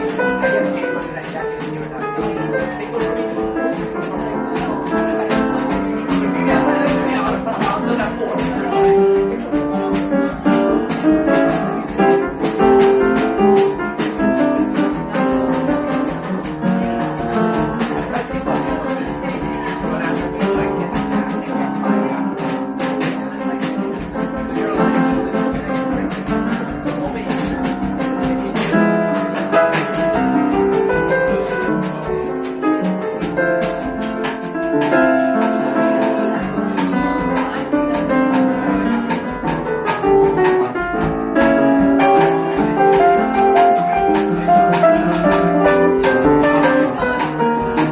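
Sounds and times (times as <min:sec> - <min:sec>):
jazz band playing: 0:00.0 - 0:47.9
ticking percussion: 0:22.8 - 0:47.9.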